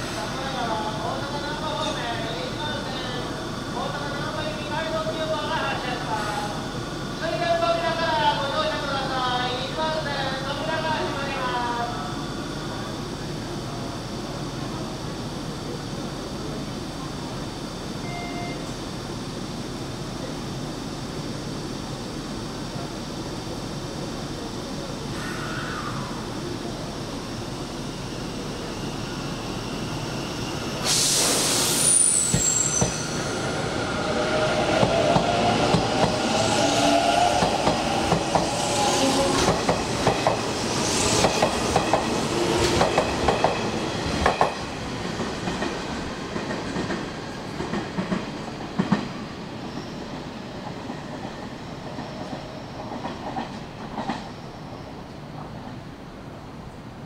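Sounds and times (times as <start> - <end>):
high squeal: 25.1 - 26.4, 27.8 - 34.6.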